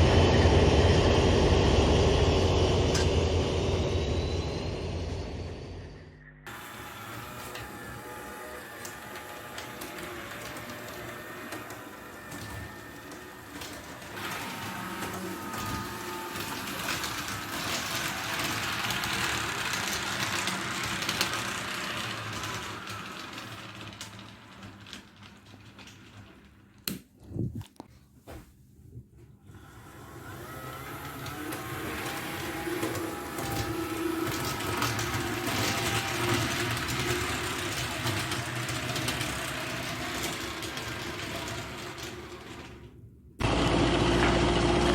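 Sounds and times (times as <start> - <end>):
small electric motor whine: 0.0 - 19.9
model train wheels clicking: 8.8 - 26.0, 31.3 - 42.8
model train motor humming: 29.7 - 42.8.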